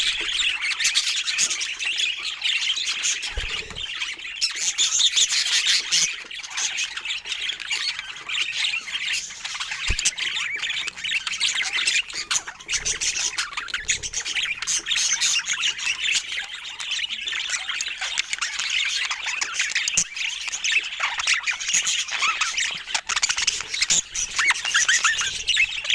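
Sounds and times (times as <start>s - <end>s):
budgerigars chattering: 0.0s - 25.9s.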